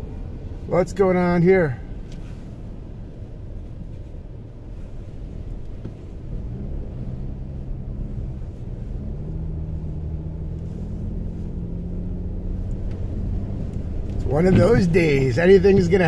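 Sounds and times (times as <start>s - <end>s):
car road noise from cabin: 0.0s - 16.0s
engine drone: 5.9s - 16.0s.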